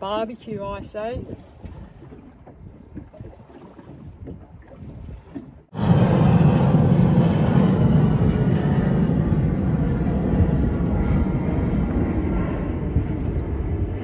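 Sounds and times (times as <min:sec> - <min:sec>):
loud engine drone: 0:05.7 - 0:14.0.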